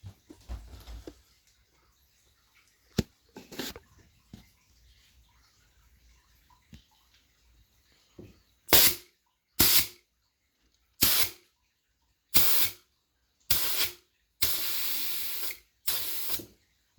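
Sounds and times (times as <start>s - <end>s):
pressurised gas hissing: 8.7s - 9.0s, 9.6s - 10.0s, 11.0s - 11.4s, 12.4s - 12.8s, 13.5s - 16.5s.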